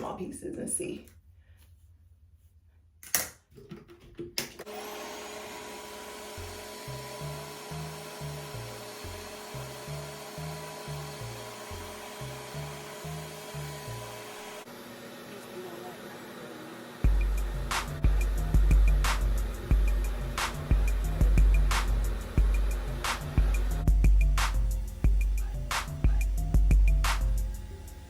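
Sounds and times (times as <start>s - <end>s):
hair dryer running: 4.6s - 28.0s
background music with bass: 17.0s - 28.0s.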